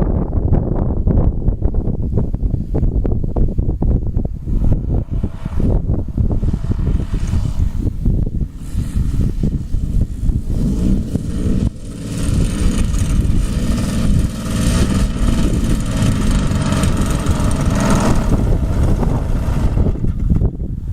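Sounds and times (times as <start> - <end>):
wind buffeting microphone: 0.0 - 20.9
model aircraft engine running: 4.4 - 20.5.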